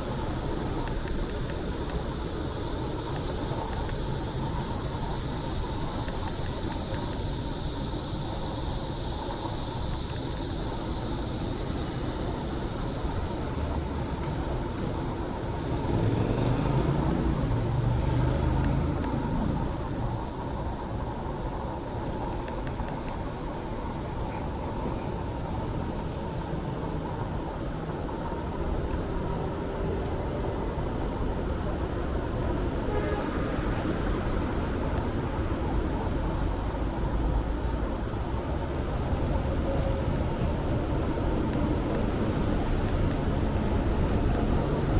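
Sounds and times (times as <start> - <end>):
road traffic rumble: 0.0 - 44.9
loud vehicle passing: 15.7 - 19.7.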